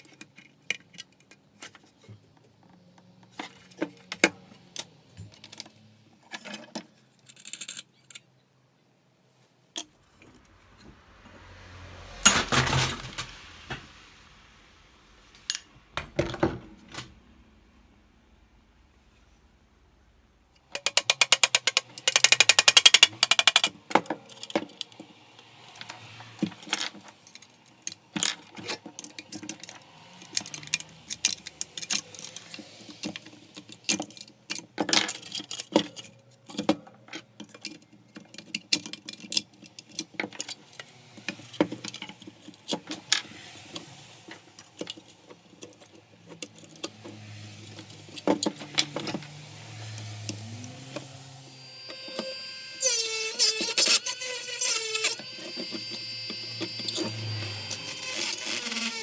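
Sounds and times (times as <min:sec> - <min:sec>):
small parts clicking and clinking: 0:06.3 - 0:08.3, 0:20.7 - 0:24.9.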